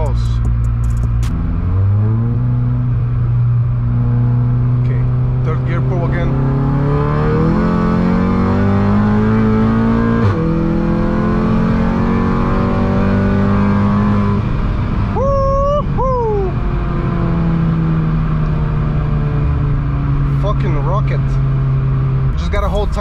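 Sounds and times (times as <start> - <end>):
turbocharged car engine revving: 0.0 - 15.2.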